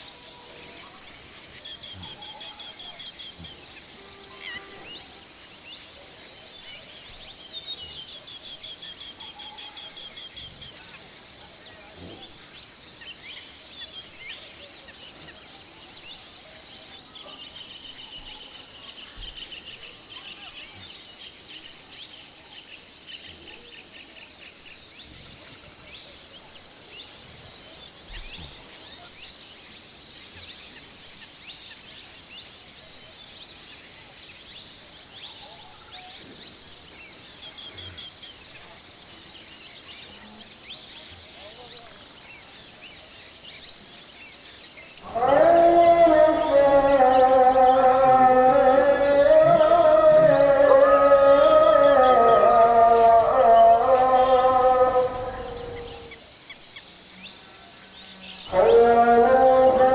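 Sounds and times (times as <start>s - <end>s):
birds chirping and trilling: 45.0s - 56.2s.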